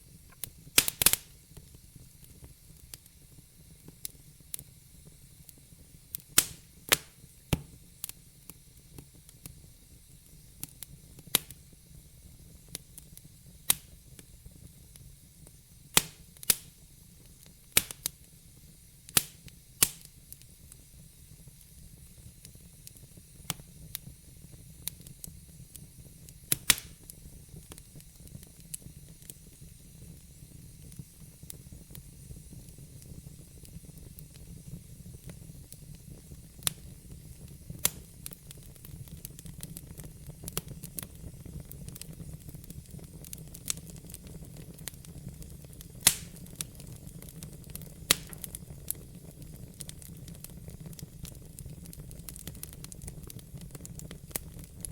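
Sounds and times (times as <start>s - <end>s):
flames rumbling and hissing: 0.0s - 54.9s
wood fire crackling and popping: 0.0s - 54.9s.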